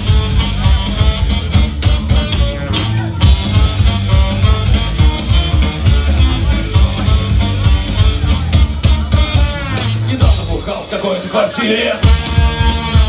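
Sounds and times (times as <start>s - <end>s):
instrumental rock music: 0.0s - 13.0s.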